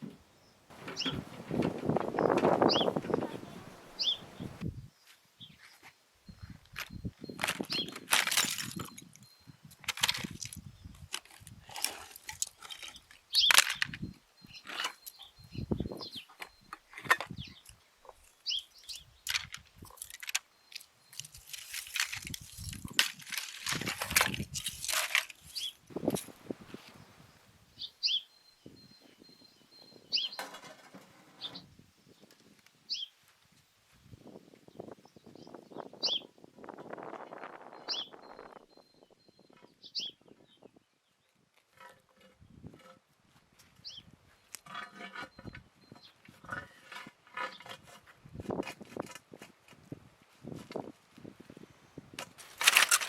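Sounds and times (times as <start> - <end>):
small bird chirping: 0.8 - 1.2, 2.2 - 8.0, 12.9 - 21.4, 25.4 - 25.8, 27.0 - 30.4, 32.9 - 33.2, 37.7 - 41.3
bricks and tools knocking in soil: 6.7 - 15.2, 16.4 - 26.4, 52.1 - 53.0.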